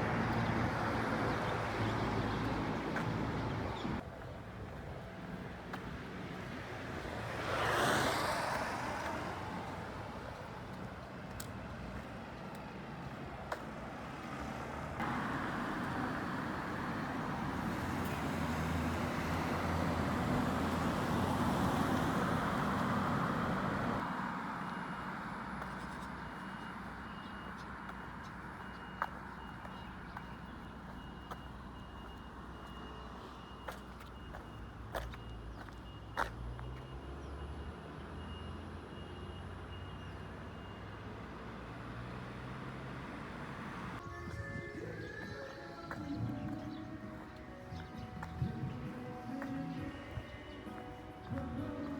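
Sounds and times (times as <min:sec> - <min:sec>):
steady traffic hum: 0:00.0 - 0:51.9
vehicles passing: 0:00.0 - 0:51.9.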